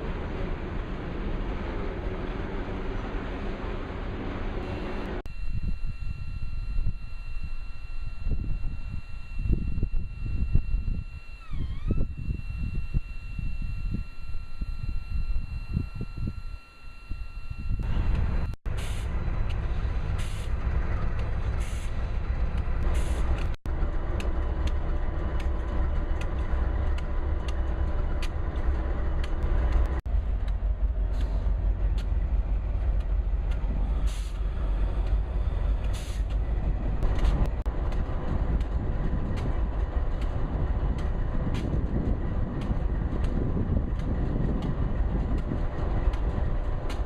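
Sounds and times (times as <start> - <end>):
freight train rumbling: 0.0 - 5.3, 17.8 - 47.0
train clicks: 19.3 - 47.0.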